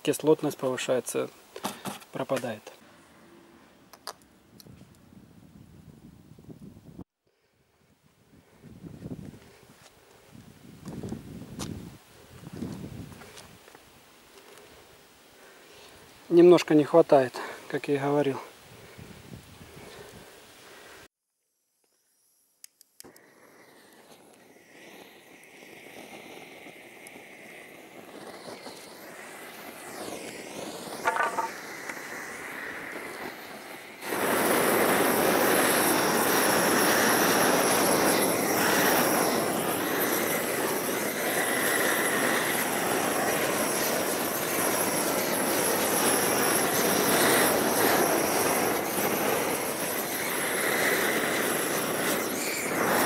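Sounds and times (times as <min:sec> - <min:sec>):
gas torch roaring: 0:22.7 - 0:53.0.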